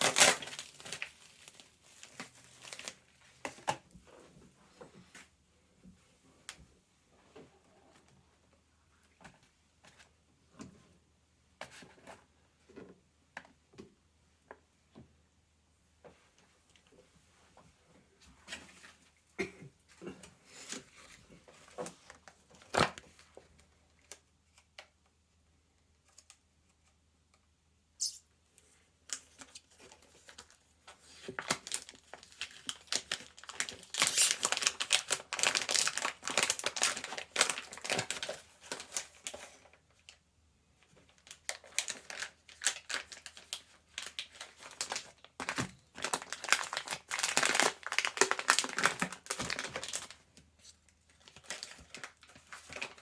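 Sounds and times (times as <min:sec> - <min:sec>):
hands crinkling crisp material: 0:29.1 - 0:40.2, 0:40.9 - 0:53.0.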